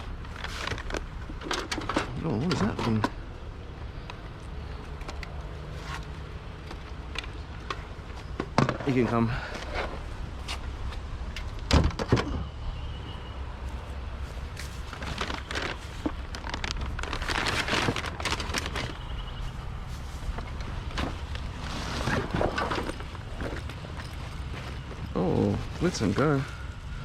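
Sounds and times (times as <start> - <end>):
junk knocking and clattering: 0.3 - 3.2, 11.5 - 12.4, 20.4 - 25.1.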